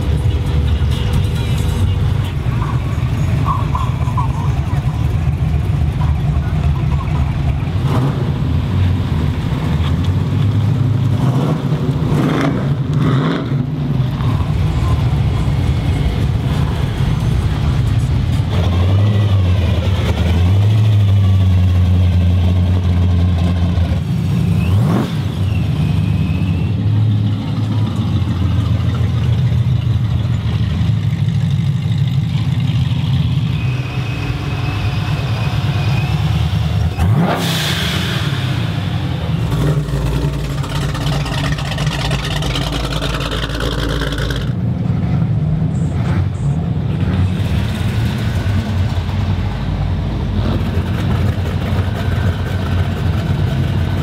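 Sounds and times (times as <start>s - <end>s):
car engine accelerating: 2.6s - 45.1s.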